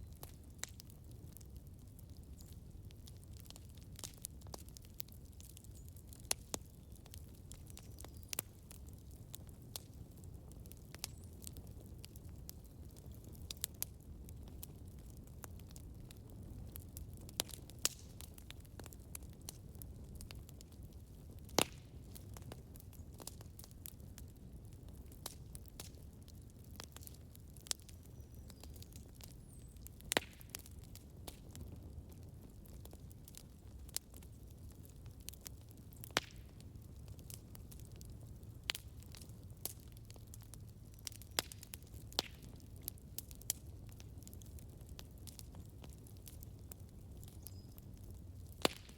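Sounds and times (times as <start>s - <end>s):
campfire rumble: 0.0s - 48.9s
fire crackles and pops: 0.0s - 48.9s.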